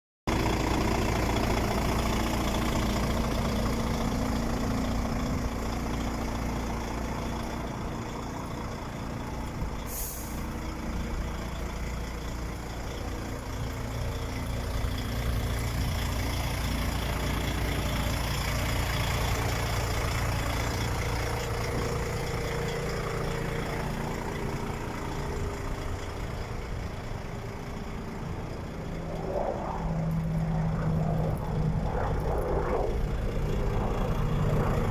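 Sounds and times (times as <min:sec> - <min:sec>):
truck diesel engine running: 0:00.3 - 0:34.9
air hiss: 0:09.8 - 0:10.5.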